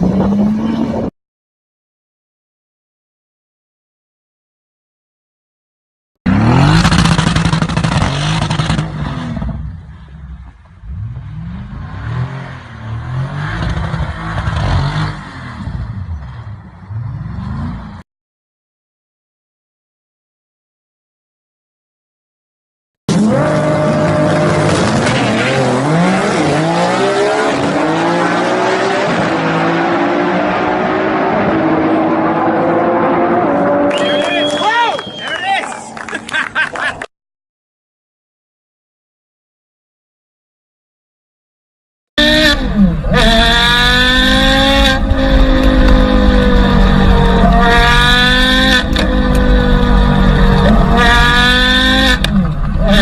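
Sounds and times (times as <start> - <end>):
vehicle engine revving: 6.3 - 9.8, 23.1 - 34.2, 42.2 - 53.0.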